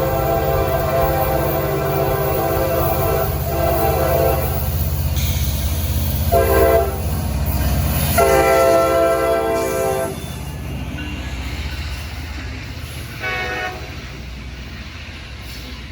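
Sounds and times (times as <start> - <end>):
locomotive horn blasts: 0.0 - 4.7, 6.3 - 7.1, 8.1 - 10.2, 13.2 - 14.0
diesel locomotive rumble: 0.0 - 15.9.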